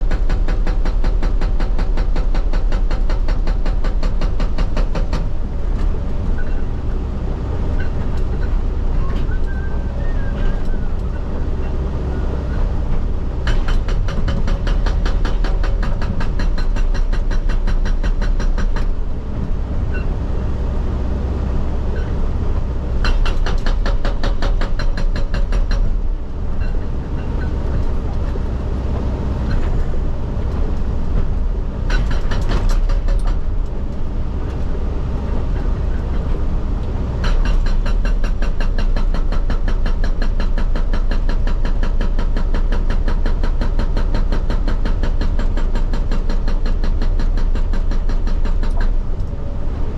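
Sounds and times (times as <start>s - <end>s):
hydraulic rock breaker hammering: 0.0s - 5.4s, 13.4s - 19.0s, 23.0s - 27.9s, 31.9s - 33.5s, 37.2s - 49.1s
diesel engine and hydraulics running: 0.0s - 49.9s.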